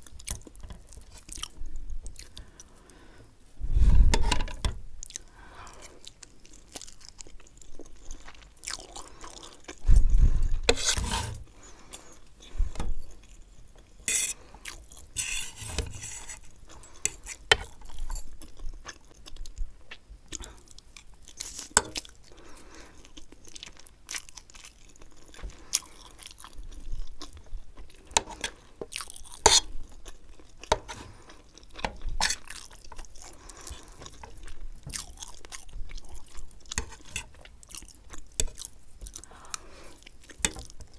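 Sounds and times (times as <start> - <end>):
close chewing of noodles: 0.0 - 3.1, 5.0 - 15.2, 16.4 - 40.9
fork scraping a plate: 10.4 - 11.4, 14.0 - 14.4, 15.1 - 17.7, 29.4 - 29.6, 36.8 - 37.4.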